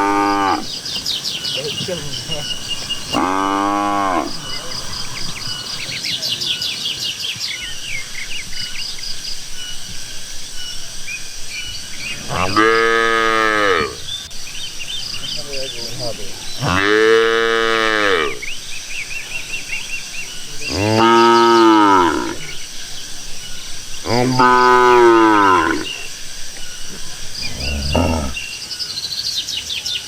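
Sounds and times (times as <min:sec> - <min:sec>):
cattle mooing: 0:00.0 - 0:00.8, 0:02.0 - 0:05.9, 0:12.2 - 0:14.1, 0:15.4 - 0:18.6, 0:20.5 - 0:22.7, 0:24.0 - 0:26.3, 0:26.9 - 0:28.4
steady high chirping: 0:00.0 - 0:30.0.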